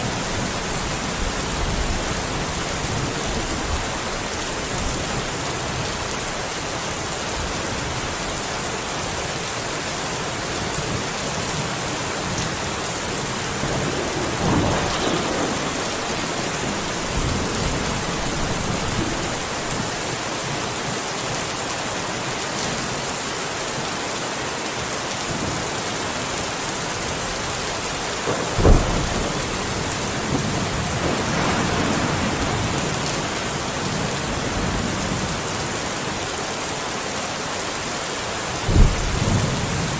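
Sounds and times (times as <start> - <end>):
steady rain falling: 0.0 - 39.9
thunder rumbling: 12.2 - 20.2, 28.0 - 35.5, 38.6 - 39.9
sharp close thunder crack: 13.4 - 20.0, 28.3 - 34.2.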